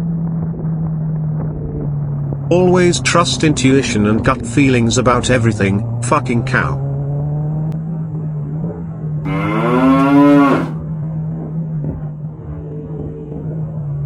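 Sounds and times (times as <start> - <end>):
cow mooing: 9.3 - 10.8.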